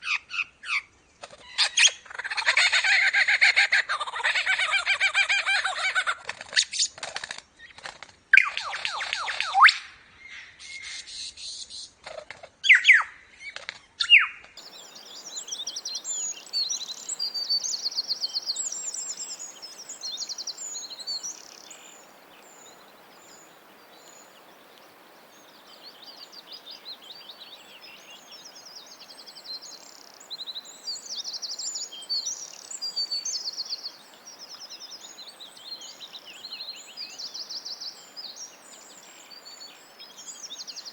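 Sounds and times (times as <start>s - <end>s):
birds chirping and trilling: 12.6s - 40.9s
birds calling loudly: 14.0s - 40.9s.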